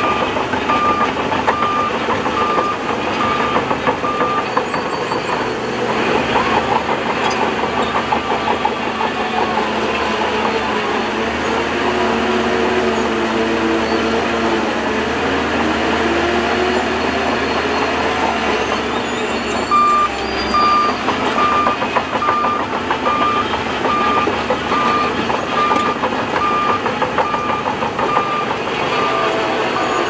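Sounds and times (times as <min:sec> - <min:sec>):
reversing alarm beeping: 0:00.0 - 0:09.2, 0:16.4 - 0:30.0
heavy machinery running: 0:00.0 - 0:30.0.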